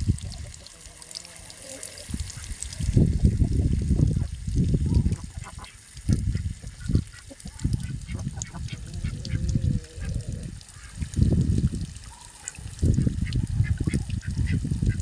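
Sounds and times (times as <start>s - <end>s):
ducks quacking: 5.1s - 11.0s.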